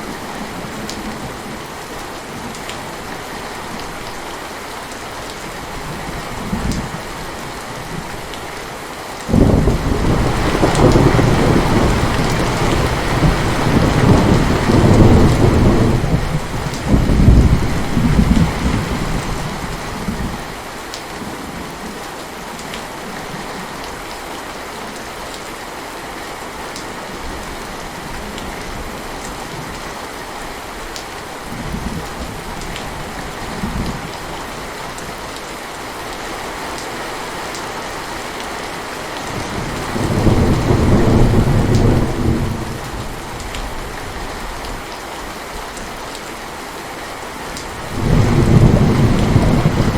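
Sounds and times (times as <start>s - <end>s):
heavy rain: 0.0s - 49.9s
thunder rolling: 9.3s - 20.4s, 47.8s - 49.9s.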